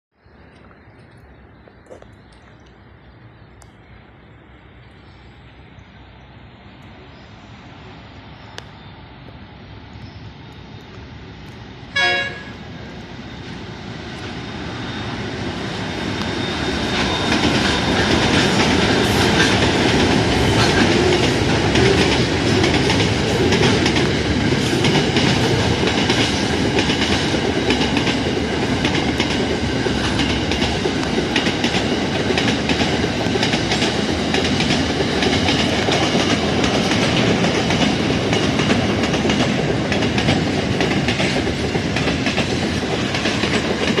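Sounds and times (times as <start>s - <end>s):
freight train rumble and rattle: 3.5s - 44.0s
train horn blast: 11.9s - 12.6s
wheels clacking over rail joints: 15.7s - 44.0s.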